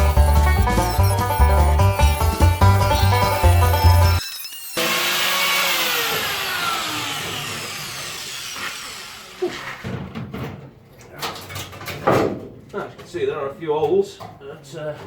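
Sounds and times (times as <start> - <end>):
angle grinder spinning down: 0.0 - 9.8
knocks and clatter: 9.8 - 13.1.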